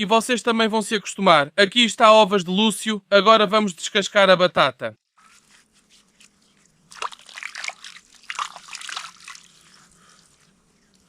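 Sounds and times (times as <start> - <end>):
water splashing and trickling: 6.5 - 11.0.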